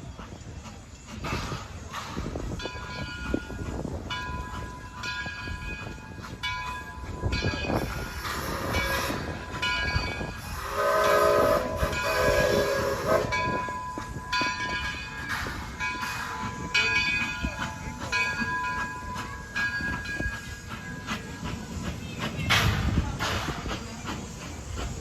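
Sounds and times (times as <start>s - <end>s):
steam train running past: 0.0s - 25.0s
locomotive whistle blast: 10.4s - 13.4s.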